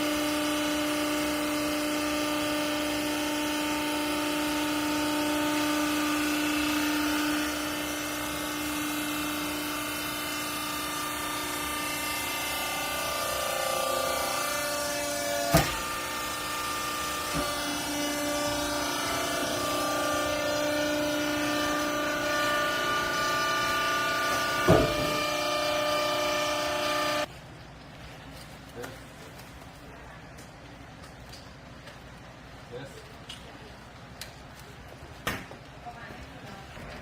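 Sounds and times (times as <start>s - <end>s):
hydraulic press motor whine: 0.0s - 27.3s
sharp bang: 24.6s - 25.3s.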